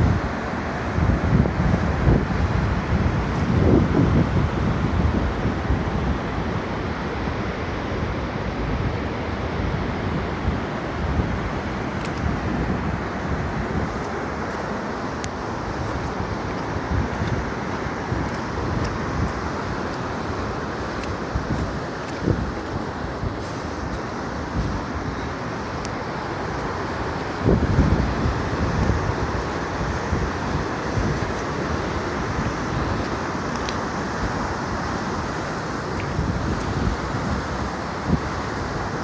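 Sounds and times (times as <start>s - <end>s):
wind buffeting microphone: 0.0s - 39.0s
waterfall rushing: 11.0s - 39.0s.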